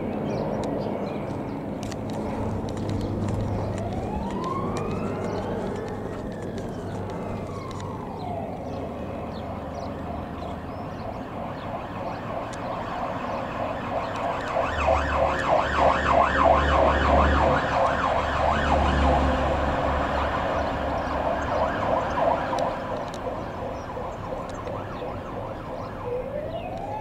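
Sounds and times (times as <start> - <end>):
low engine rumble: 0.6 - 12.4
siren wailing and yelping: 3.3 - 27.0.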